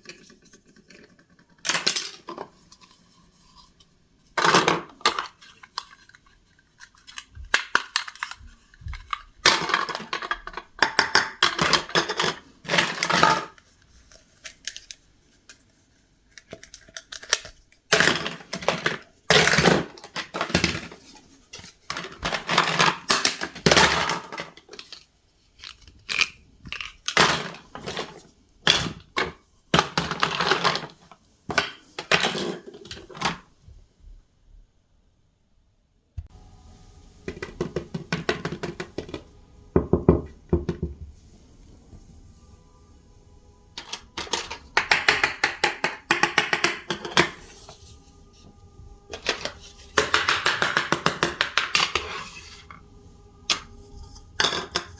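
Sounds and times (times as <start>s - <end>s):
plastic toy pieces clattering: 0.0s - 2.8s, 4.4s - 13.7s, 16.3s - 33.5s, 43.8s - 47.9s, 49.1s - 52.7s, 53.5s - 54.9s.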